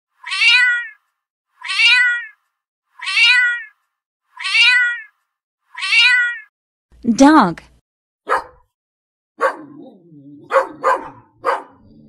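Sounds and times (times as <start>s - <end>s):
cat meowing: 0.2s - 6.5s.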